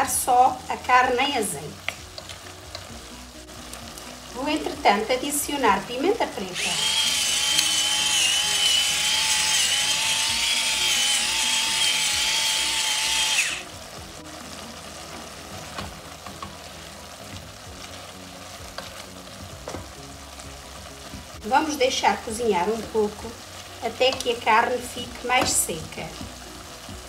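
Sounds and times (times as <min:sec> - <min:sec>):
beef frying in oil: 0:00.0 - 0:27.0
electric pepper mill grinding: 0:06.6 - 0:13.7.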